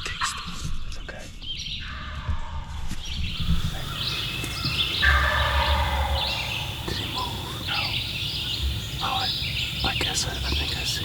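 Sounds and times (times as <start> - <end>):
songbirds chirping: 0.0 - 11.0
turkey gobbling: 3.4 - 11.0.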